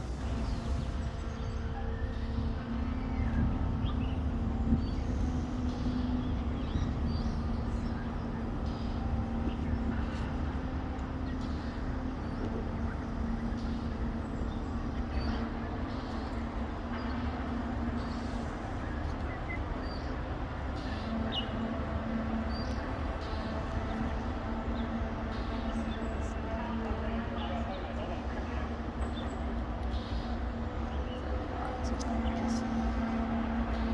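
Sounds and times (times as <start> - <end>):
urban background rumble: 0.0 - 33.9.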